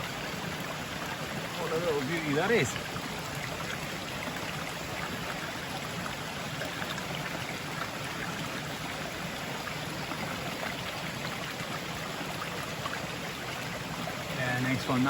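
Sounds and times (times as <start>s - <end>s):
rain falling: 0.0s - 3.5s
river rushing: 0.0s - 5.2s.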